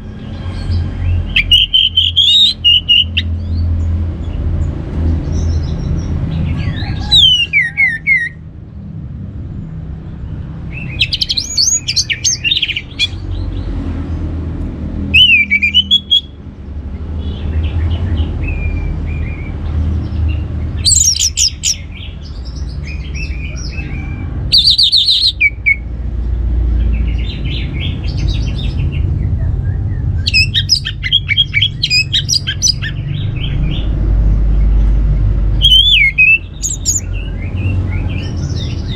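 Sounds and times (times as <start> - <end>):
thrush singing: 0.7 - 3.4, 6.4 - 8.4, 10.7 - 13.5, 15.0 - 16.4, 30.2 - 33.9, 35.5 - 38.9
steady low rumble: 8.4 - 38.9.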